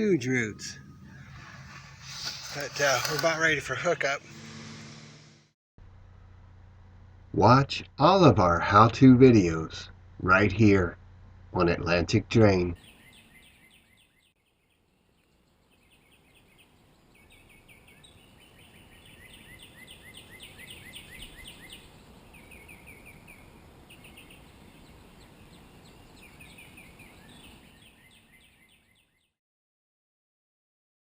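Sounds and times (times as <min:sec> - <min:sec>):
birds chirping trills: 0:00.0 - 0:05.4, 0:12.8 - 0:29.3.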